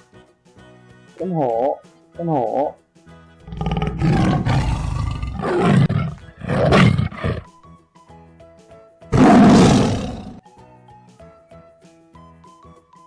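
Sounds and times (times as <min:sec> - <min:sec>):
light background music: 0:00.0 - 0:13.0
tiger roaring: 0:03.5 - 0:07.5, 0:09.1 - 0:10.4.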